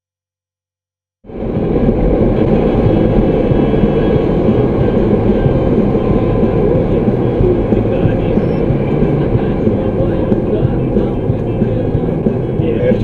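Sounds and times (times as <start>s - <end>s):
vehicle engine and road rumble: 1.3s - 13.0s.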